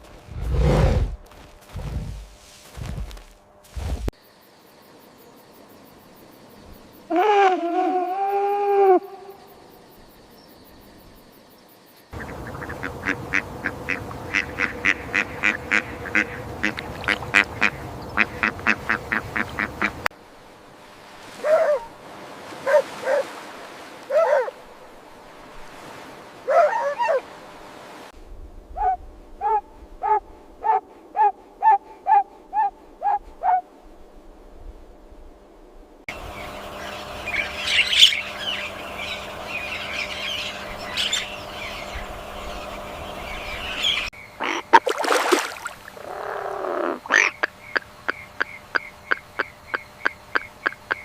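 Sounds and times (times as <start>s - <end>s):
ducks quacking: 12.2s - 20.1s, 36.4s - 44.9s, 46.0s - 51.0s.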